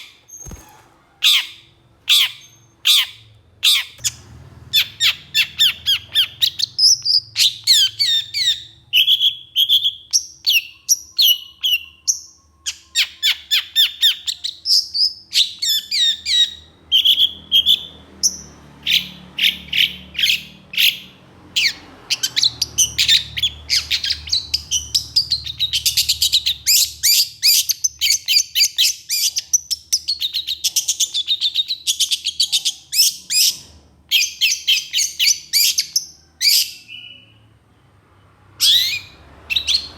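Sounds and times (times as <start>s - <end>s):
bird chirps and whistles: 4.8s - 21.0s, 38.6s - 39.9s.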